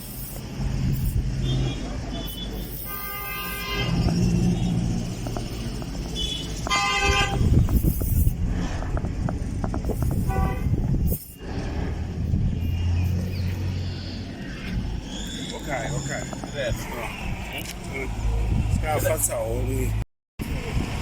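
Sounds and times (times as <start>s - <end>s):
engine rumbling: 0.0s - 21.0s
car horn toots: 1.4s - 4.1s, 6.1s - 7.6s, 10.2s - 10.8s.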